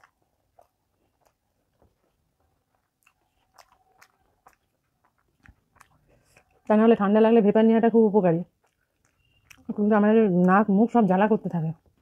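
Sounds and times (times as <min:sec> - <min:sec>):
mouth clicks and smacks: 0:00.0 - 0:06.8, 0:08.4 - 0:10.6
person chewing: 0:00.0 - 0:06.8, 0:08.4 - 0:10.6.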